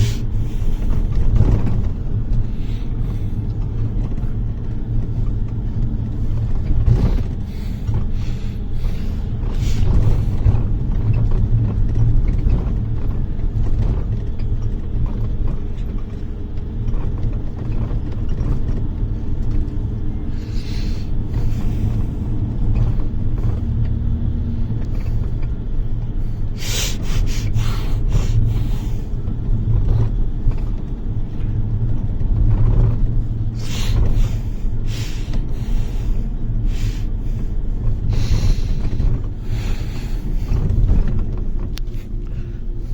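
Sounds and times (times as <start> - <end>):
knocks and rattles: 0.0 - 20.3, 37.6 - 42.9
bus engine and road rumble: 0.0 - 42.9.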